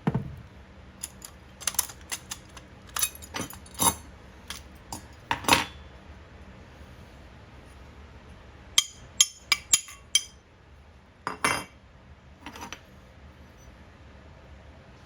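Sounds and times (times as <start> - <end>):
small metal pieces clinking: 1.0 - 4.6.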